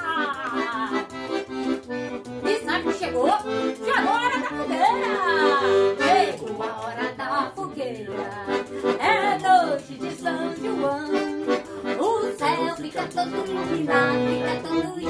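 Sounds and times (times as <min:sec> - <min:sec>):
lively accordion music: 0:00.0 - 0:15.0.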